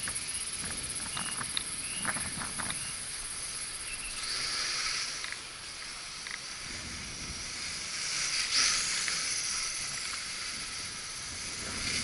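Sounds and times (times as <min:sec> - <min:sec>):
wind hiss: 0:00.0 - 0:12.0.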